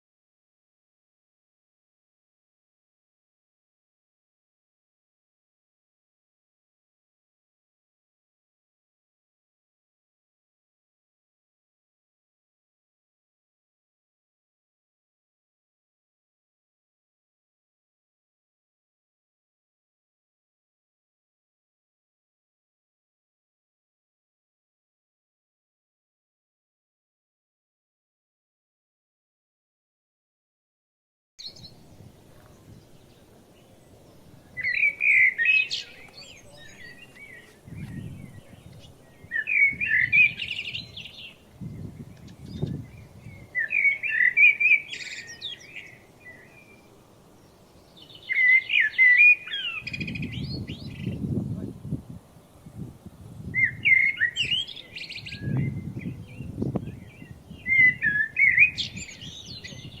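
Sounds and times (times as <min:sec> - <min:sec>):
songbird warbling: 0:34.6 - 0:46.7, 0:48.0 - 0:51.3, 0:53.5 - 1:00.0.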